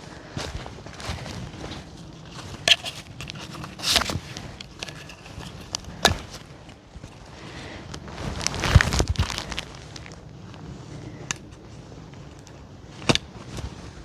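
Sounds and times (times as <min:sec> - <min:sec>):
footsteps crunching on leaves: 0:00.0 - 0:10.7
twigs cracking: 0:00.0 - 0:14.0.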